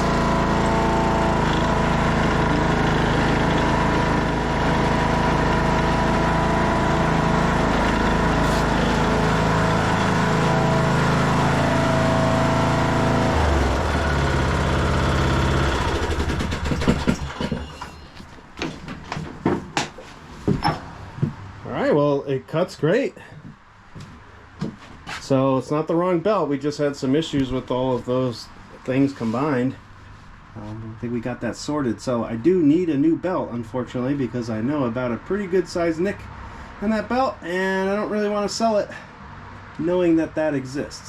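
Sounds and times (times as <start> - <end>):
lawn tractor engine running: 0.0 - 18.2
sharp knocks and clatters: 16.0 - 21.5.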